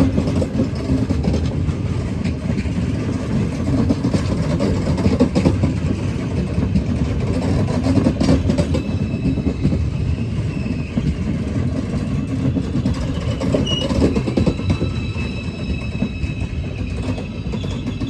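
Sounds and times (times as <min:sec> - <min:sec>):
train rumbling on rails: 0:00.0 - 0:18.0.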